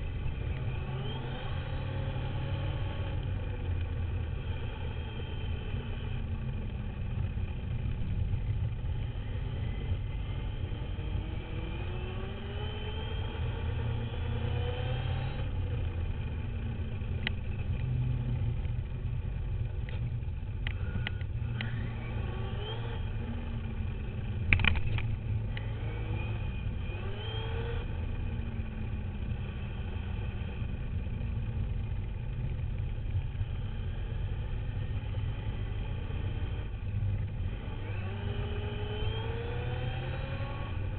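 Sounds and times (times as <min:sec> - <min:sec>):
motor whine rising in pitch: 0:00.3 - 0:03.2, 0:20.8 - 0:24.2, 0:25.5 - 0:28.5, 0:37.4 - 0:40.9.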